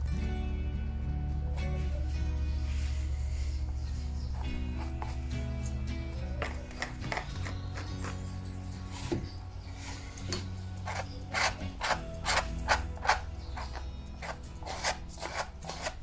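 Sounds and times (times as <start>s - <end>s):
quiet background music: 0.0s - 16.0s
paintbrush scrubbing on canvas: 10.8s - 16.0s.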